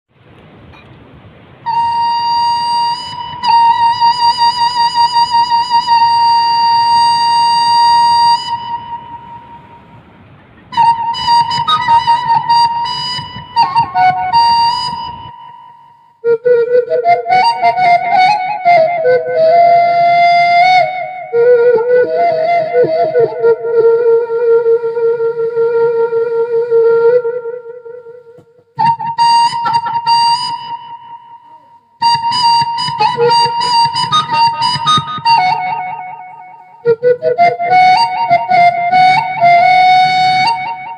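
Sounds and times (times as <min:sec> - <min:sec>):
steady hiss: 0:00.1 - 0:16.6
bamboo flute long note: 0:01.5 - 0:40.9.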